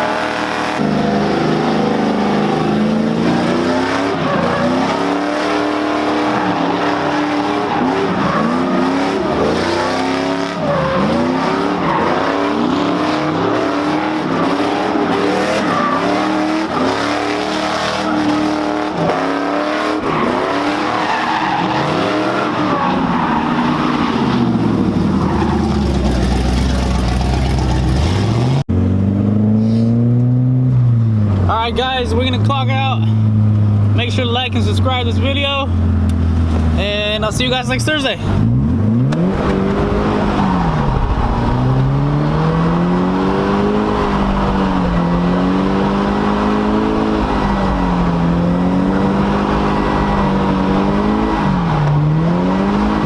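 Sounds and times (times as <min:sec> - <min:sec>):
car engine revving: 0:00.0 - 0:53.0.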